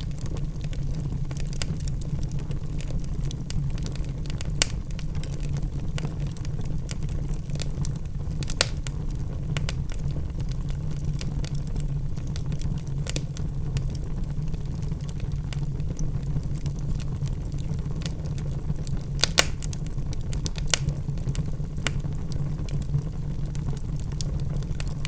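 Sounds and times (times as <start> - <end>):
logs crackling and popping: 0.0 - 25.0
low roar of flames: 0.0 - 25.0.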